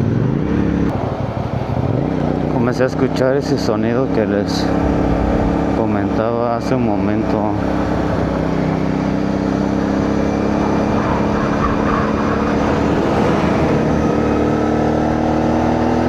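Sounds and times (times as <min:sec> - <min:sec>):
wind and road noise: 0:00.0 - 0:16.0
motorcycle engine running: 0:04.1 - 0:10.8.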